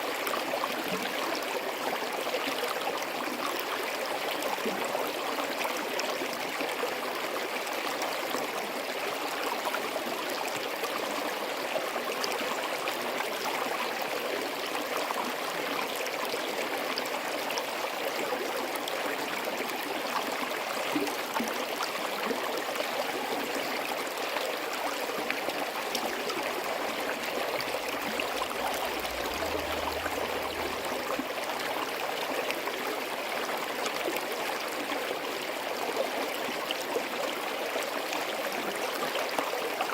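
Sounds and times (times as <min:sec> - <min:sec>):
stream rushing over rocks: 0:20.4 - 0:39.9.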